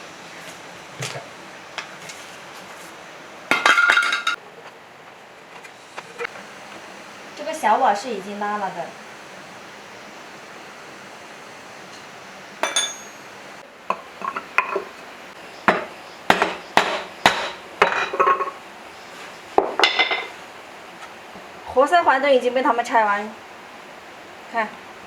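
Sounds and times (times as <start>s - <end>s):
metal engine parts clinking: 12.6s - 13.3s, 13.9s - 14.9s.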